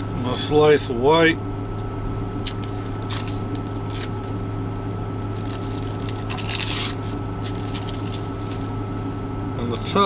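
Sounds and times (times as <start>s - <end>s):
truck cab hum: 0.0s - 10.0s
soft squishing and rustling: 1.7s - 9.3s.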